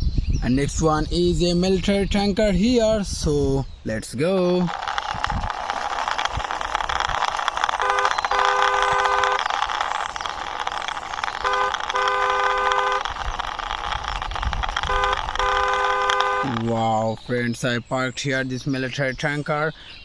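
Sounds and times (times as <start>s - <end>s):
toy wheels rolling: 4.0s - 17.7s
toy horn tooting: 4.7s - 16.9s.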